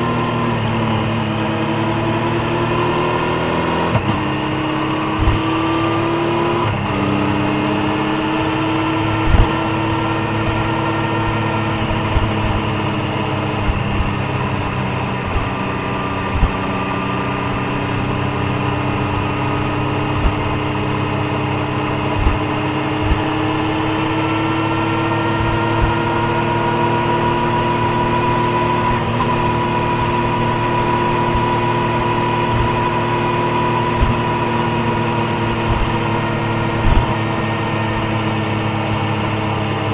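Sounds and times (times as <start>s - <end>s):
motorcycle engine and exhaust: 0.0s - 39.9s
short low thumps: 9.1s - 26.3s.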